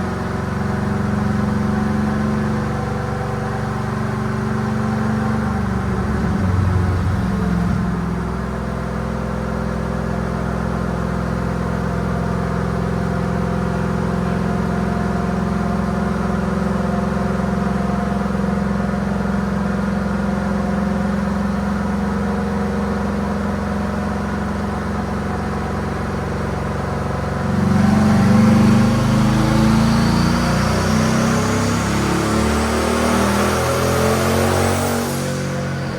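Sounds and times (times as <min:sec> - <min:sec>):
truck engine running and revving: 0:00.0 - 0:22.0, 0:24.7 - 0:35.9
high whine: 0:03.6 - 0:09.5, 0:29.2 - 0:35.9.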